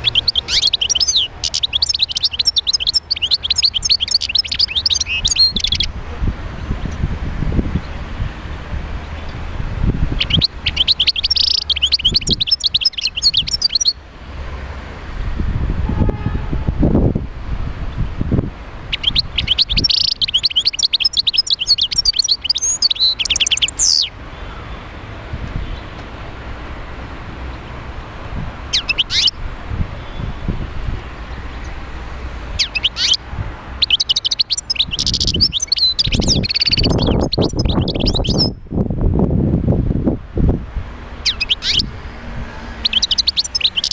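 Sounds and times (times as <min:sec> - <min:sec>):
goldfinch twittering song: 0:00.0 - 0:06.0, 0:10.1 - 0:14.0, 0:18.9 - 0:24.2, 0:28.7 - 0:29.4, 0:32.6 - 0:38.6, 0:41.2 - 0:43.9.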